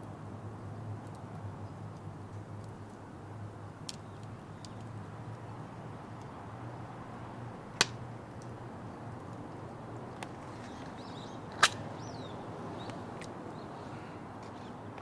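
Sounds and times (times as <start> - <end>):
wood fire crackling: 1.0 - 13.4
loud snap of fire: 3.8 - 4.9, 7.7 - 8.6, 11.5 - 12.0.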